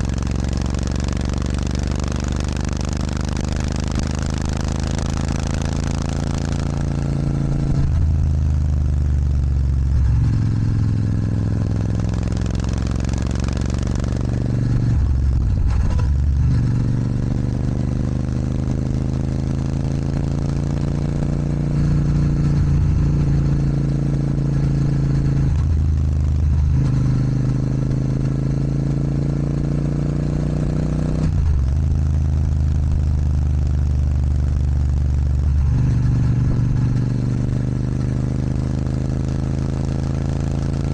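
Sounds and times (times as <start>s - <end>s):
motorcycle engine with gear changes: 0.0s - 40.9s.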